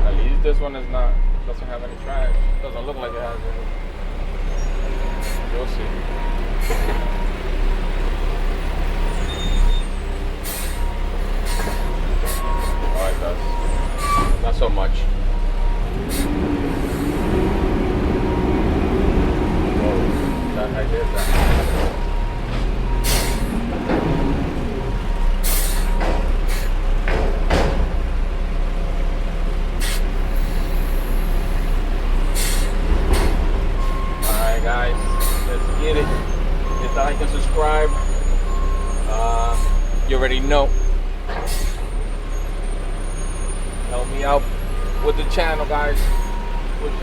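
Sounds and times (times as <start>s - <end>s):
diesel truck engine running: 0.0s - 47.0s.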